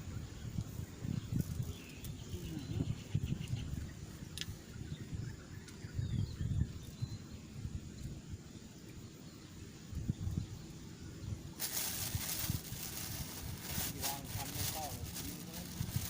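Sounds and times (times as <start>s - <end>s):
low rumbling on microphone: 0.0s - 8.6s
faint bird chirps: 0.0s - 16.0s.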